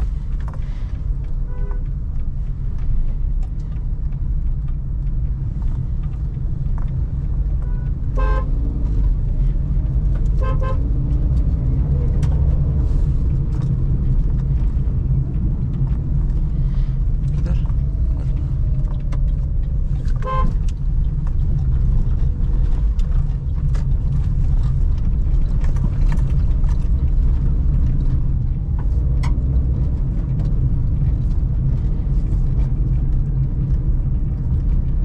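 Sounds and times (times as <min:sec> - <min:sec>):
car engine and road noise: 0:00.0 - 0:35.0
vehicle horn toot: 0:01.4 - 0:01.9, 0:07.6 - 0:08.5, 0:10.4 - 0:10.8, 0:20.2 - 0:20.6.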